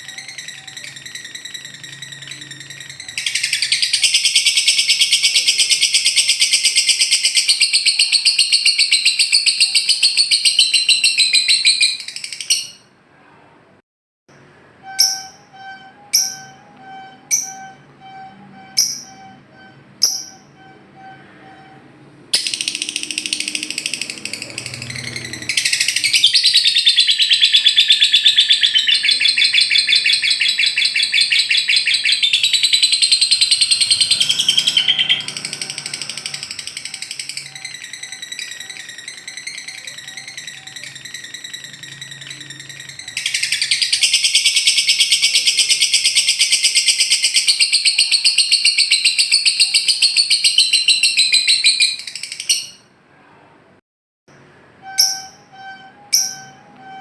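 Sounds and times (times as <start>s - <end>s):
bird chattering trill: 0.0s - 12.8s, 22.4s - 52.8s
sharp bird chirps: 0.0s - 12.9s, 22.4s - 52.9s.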